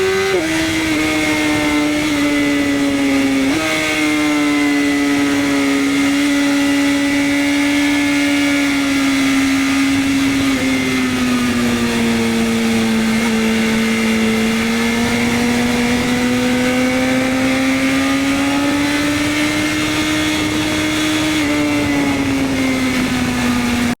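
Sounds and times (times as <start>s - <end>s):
motorcycle engine at high revs: 0.0s - 24.0s.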